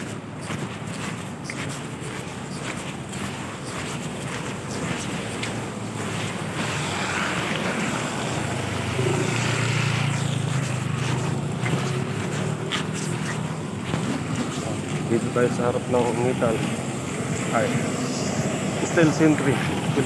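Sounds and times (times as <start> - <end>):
vehicle engine passing: 5.7 - 20.0.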